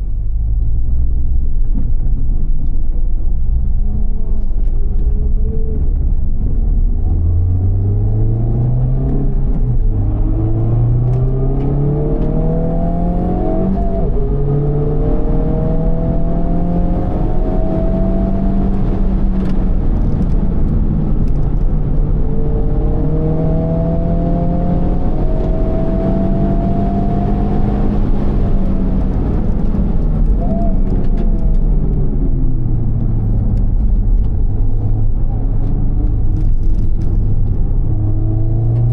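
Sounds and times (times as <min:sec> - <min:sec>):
car engine revving hard: 0:10.2 - 0:20.4, 0:22.4 - 0:30.4.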